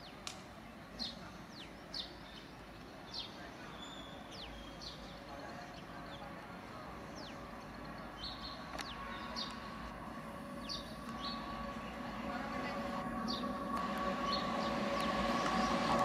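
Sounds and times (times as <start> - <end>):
birds chirping: 0.0 - 16.0
faint steady tones: 3.6 - 16.0
low rumble: 5.8 - 16.0.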